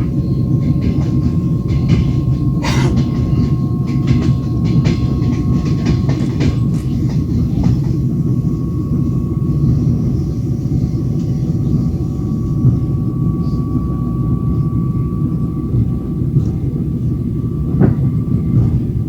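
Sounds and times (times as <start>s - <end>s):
train wheels rumbling on rails: 0.0s - 19.0s
rasping burst: 2.6s - 3.1s.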